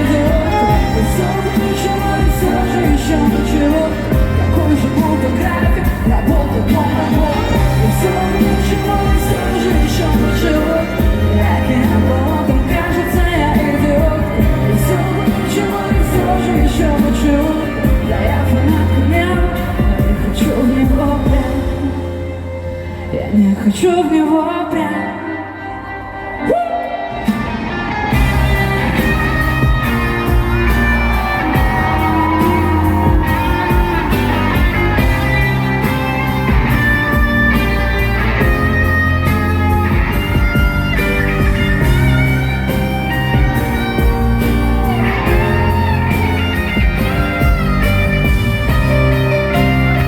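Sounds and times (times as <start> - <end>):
heavy bass: 0.0 - 22.2, 27.2 - 50.0
electric guitar: 0.0 - 50.0
pop band playing instrumental: 0.0 - 50.0
steady drum beat: 28.1 - 50.0
drum beat: 28.2 - 37.6.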